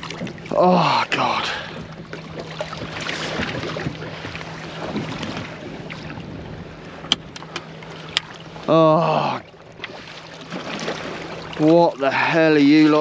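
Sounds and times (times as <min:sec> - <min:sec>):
water sounds: 0:00.0 - 0:13.0
wind buffeting microphone: 0:01.6 - 0:08.5.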